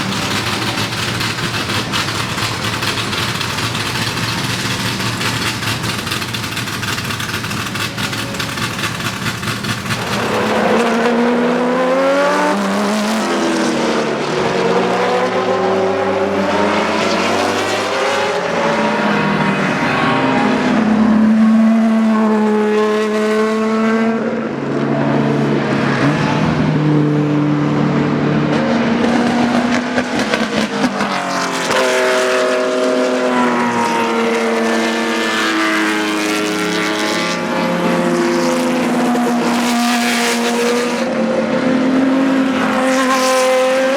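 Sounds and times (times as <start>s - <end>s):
racing engine accelerating: 0.0s - 43.9s.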